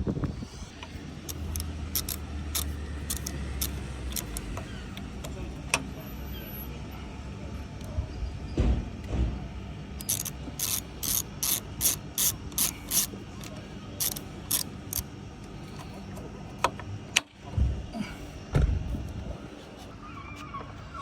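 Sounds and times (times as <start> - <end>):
screwdriver ratcheting clicks: 1.3 - 5.4, 10.0 - 15.1.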